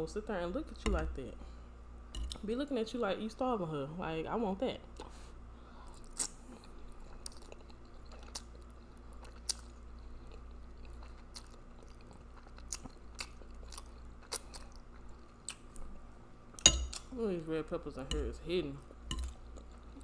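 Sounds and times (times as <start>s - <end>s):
chewing spaghetti: 5.9s - 17.1s, 18.8s - 20.0s.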